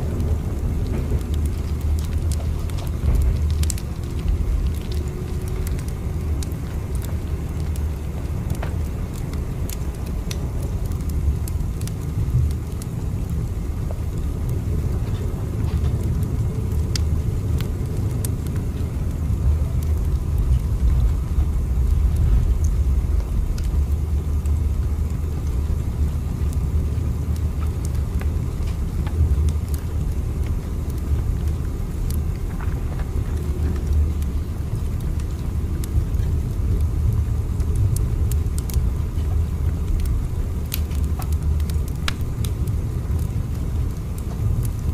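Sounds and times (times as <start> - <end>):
train rumbling: 0.0 - 24.8.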